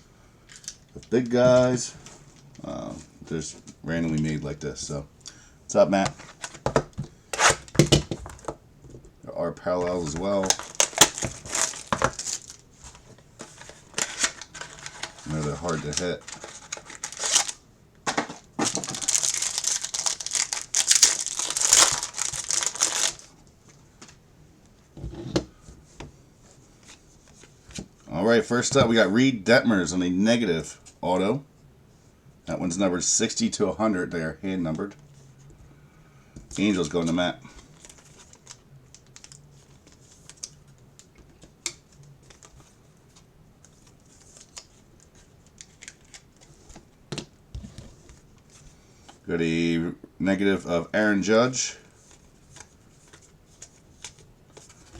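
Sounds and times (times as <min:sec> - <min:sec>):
packaging tearing and crumpling: 0:10.4 - 0:12.6, 0:13.6 - 0:17.6, 0:18.6 - 0:23.3
faint clicks and rustles at a desk: 0:36.4 - 0:49.2.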